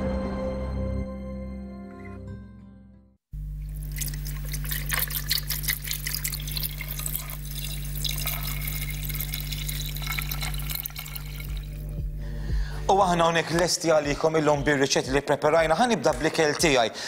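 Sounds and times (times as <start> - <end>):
low electrical hum: 3.4 - 13.0
water running from a tap: 3.6 - 12.0.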